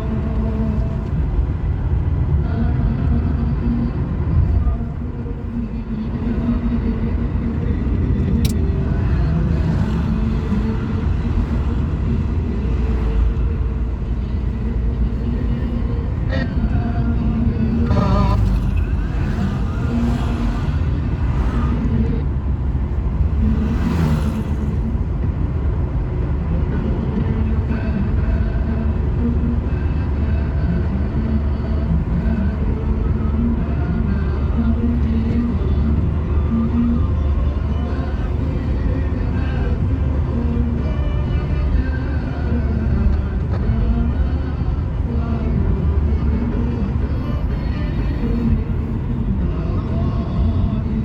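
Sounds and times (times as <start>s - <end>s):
car engine running: 0.0s - 51.0s
road rumble: 0.0s - 51.0s.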